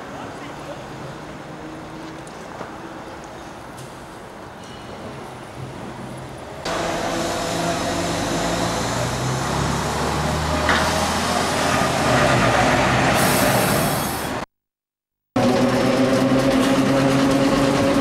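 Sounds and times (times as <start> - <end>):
train engine hum and running noise: 0.0 - 14.4, 15.4 - 18.0.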